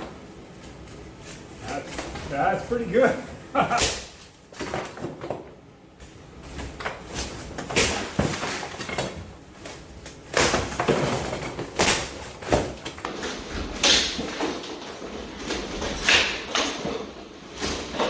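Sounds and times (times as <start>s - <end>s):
plaster knocking cracking and scraping: 6.4s - 18.0s.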